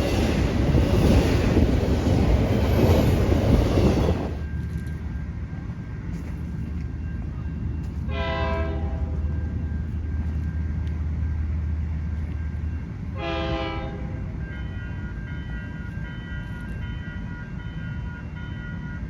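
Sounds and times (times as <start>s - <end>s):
low rumble of passing train: 0.0s - 19.0s
train horn blasts: 8.1s - 9.2s, 13.2s - 15.1s.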